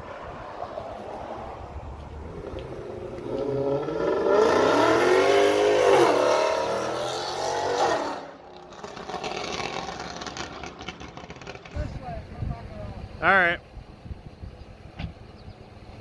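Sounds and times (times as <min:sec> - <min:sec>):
car engine accelerating hard: 0:02.1 - 0:11.9.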